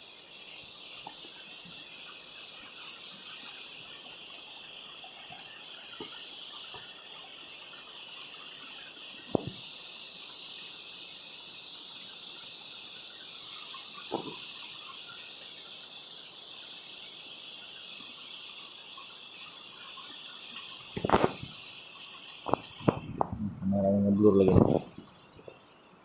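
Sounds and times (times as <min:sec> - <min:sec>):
night insects chorus: 0:00.0 - 0:26.0
faint ticks: 0:00.4 - 0:10.6.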